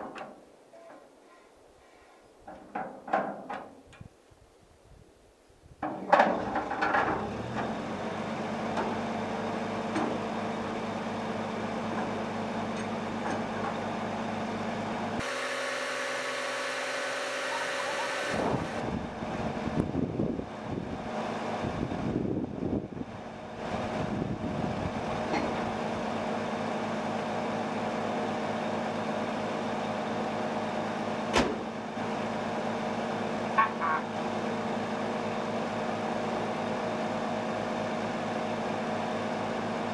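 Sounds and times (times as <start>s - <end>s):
irregular clatter and knocks: 2.4s - 3.8s, 5.8s - 7.8s
truck engine idling: 7.2s - 21.7s.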